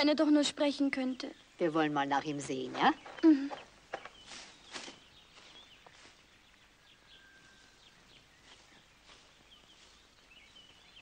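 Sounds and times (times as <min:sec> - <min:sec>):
faint bird chirps: 0:00.6 - 0:11.0.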